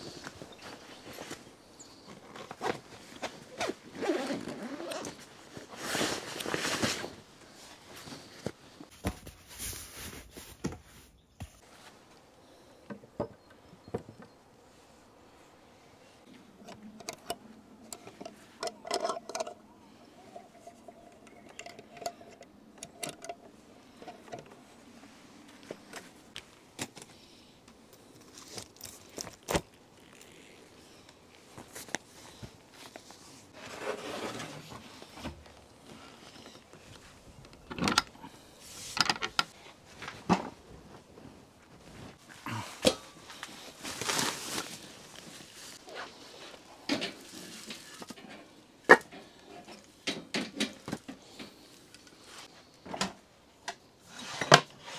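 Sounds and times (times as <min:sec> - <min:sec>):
objects clinking and scraping: 0:16.6 - 0:24.6.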